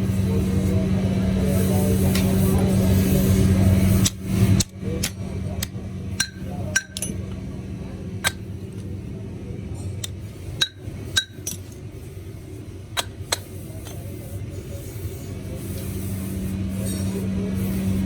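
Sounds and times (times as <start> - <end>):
steady low hum: 0.0 - 18.0
metal parts clinking: 4.0 - 7.2, 10.0 - 11.8.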